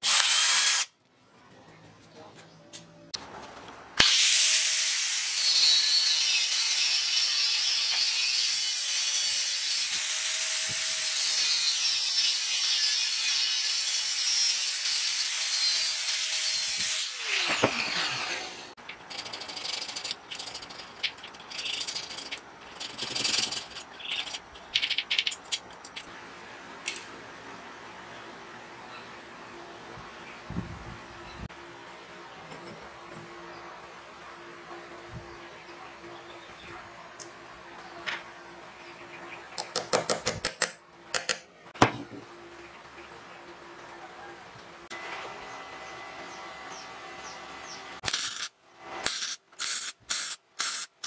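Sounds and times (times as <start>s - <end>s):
angle grinder cutting steel: 4.0s - 20.1s.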